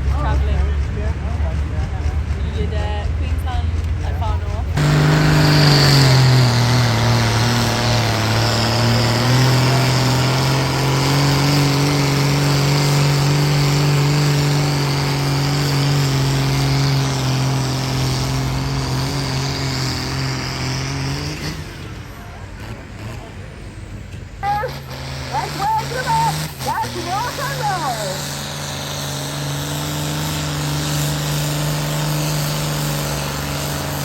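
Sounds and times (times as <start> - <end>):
tractor diesel engine revving hard: 0.0 - 34.0.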